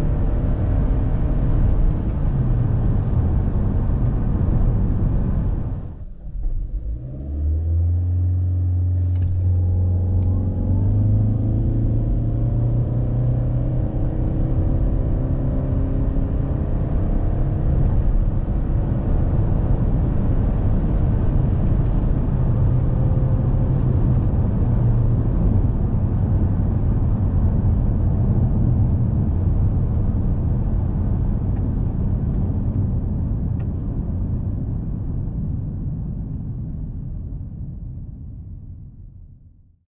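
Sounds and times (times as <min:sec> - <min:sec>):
rising whine: 0:00.0 - 0:25.6
car engine droning: 0:00.0 - 0:35.5
road noise: 0:00.0 - 0:36.2.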